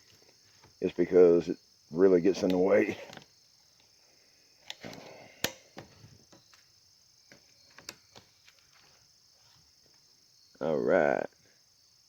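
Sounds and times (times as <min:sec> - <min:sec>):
crickets chirping: 0:00.0 - 0:12.0
soft rustle: 0:07.6 - 0:10.1.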